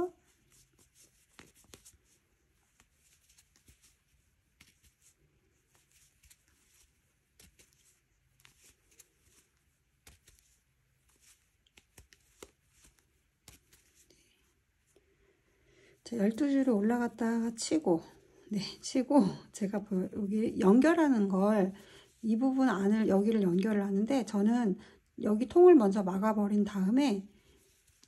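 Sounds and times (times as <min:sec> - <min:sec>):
yarn rustling: 0:00.0 - 0:14.9.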